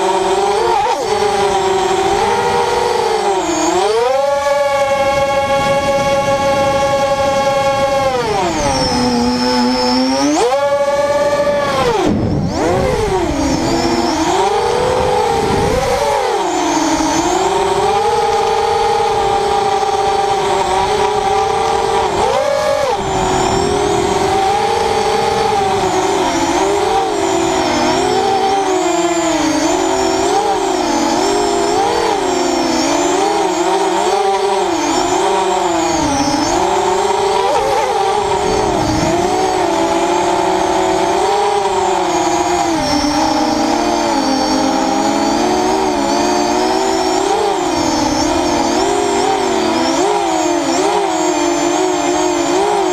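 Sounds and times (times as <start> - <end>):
drone motors whining: 0.0 - 52.9.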